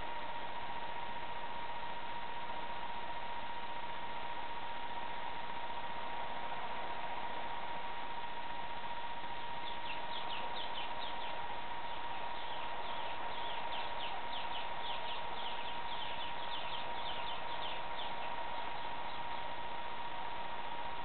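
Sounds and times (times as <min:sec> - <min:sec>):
thin steady whine: 0:00.0 - 0:21.0
bird chirping: 0:09.6 - 0:19.5.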